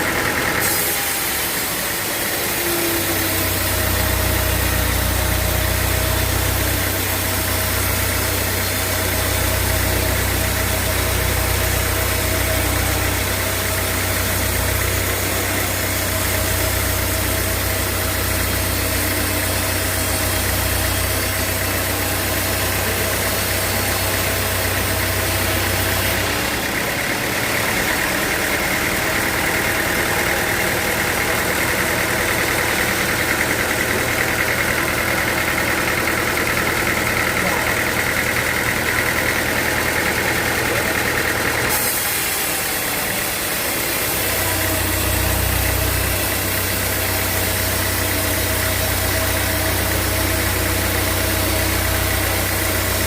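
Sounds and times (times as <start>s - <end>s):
high-pitched machine whine: 0.0s - 35.2s
sawmill machinery drone: 0.0s - 53.0s.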